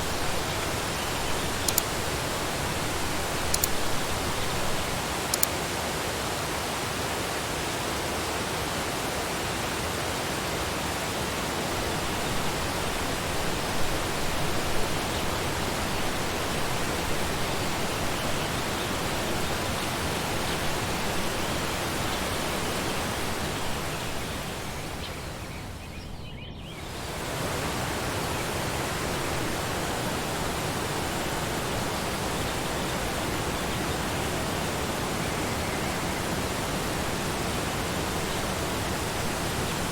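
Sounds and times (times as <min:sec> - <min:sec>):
waterfall rushing: 0:00.0 - 0:25.5, 0:26.8 - 0:39.9.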